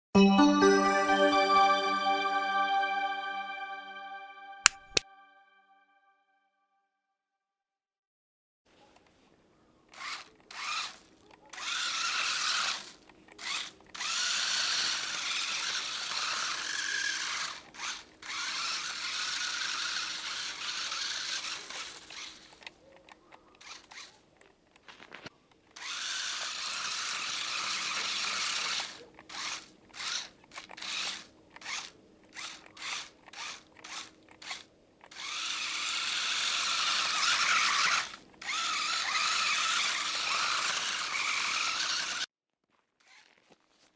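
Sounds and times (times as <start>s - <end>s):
toy car motor whining: 9.9s - 22.8s, 23.5s - 24.3s, 25.7s - 42.3s, 43.0s - 43.6s.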